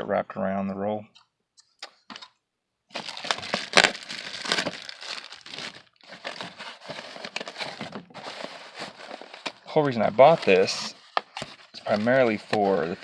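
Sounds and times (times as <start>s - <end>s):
plastic packaging crinkling: 2.9s - 13.0s.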